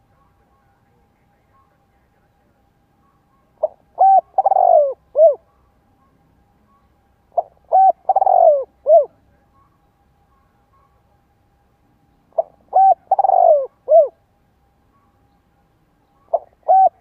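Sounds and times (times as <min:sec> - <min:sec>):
dove cooing: 0:03.4 - 0:05.6, 0:07.3 - 0:09.3, 0:12.3 - 0:14.2, 0:16.2 - 0:17.0.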